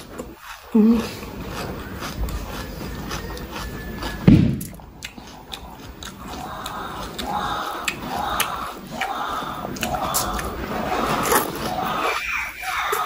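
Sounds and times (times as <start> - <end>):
close chewing of food: 0.0 - 13.0
loud low thud: 4.2 - 4.8.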